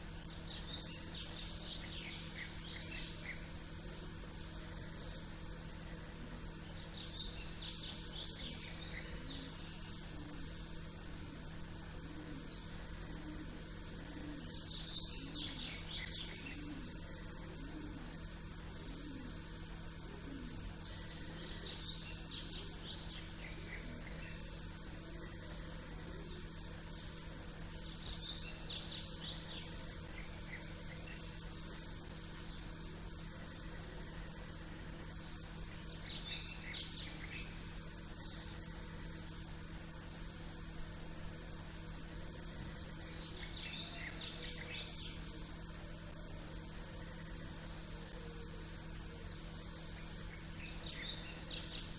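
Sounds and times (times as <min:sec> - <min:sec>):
low background hum: 0:00.0 - 0:51.9
small songbirds chirping: 0:00.0 - 0:51.9.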